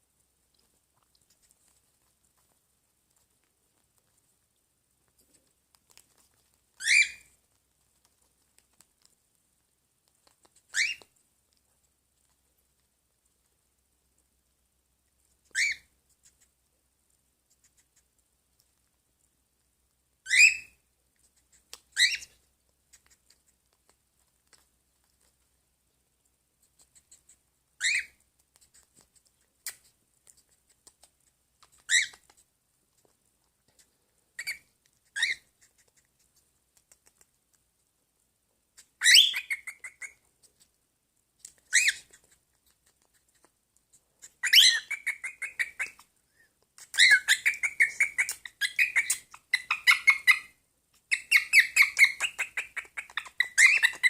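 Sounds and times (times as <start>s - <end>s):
pet bird calling: 6.8s - 7.3s, 10.7s - 11.1s, 15.5s - 15.9s, 20.3s - 20.8s, 22.0s - 22.4s, 27.8s - 28.2s, 31.7s - 32.3s, 34.4s - 35.5s, 39.0s - 40.2s, 41.7s - 42.2s, 44.2s - 46.0s, 46.8s - 50.5s, 51.1s - 54.0s.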